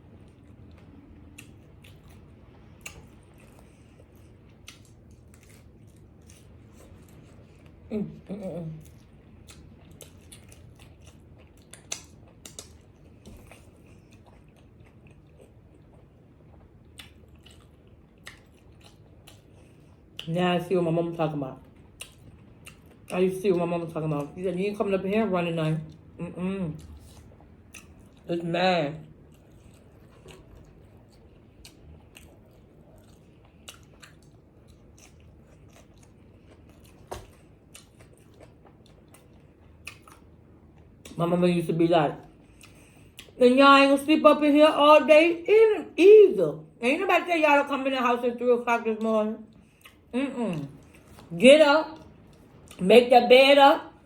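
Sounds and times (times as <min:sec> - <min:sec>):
soft chewing: 0:00.0 - 0:20.7, 0:21.3 - 0:41.2, 0:42.1 - 0:43.4, 0:48.8 - 0:52.8.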